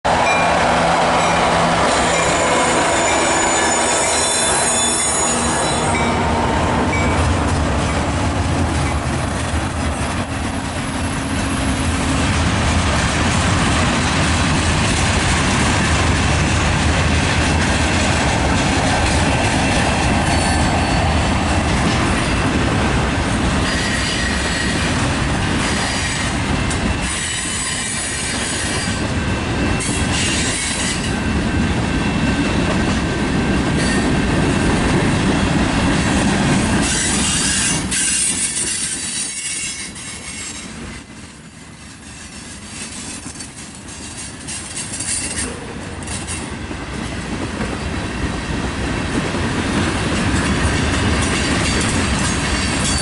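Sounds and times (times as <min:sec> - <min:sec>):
freight train wheels rumbling: 0:00.0 - 0:53.0
high wheel squeal: 0:01.2 - 0:08.0, 0:19.6 - 0:21.4, 0:23.6 - 0:25.0, 0:27.0 - 0:29.1, 0:36.8 - 0:41.1.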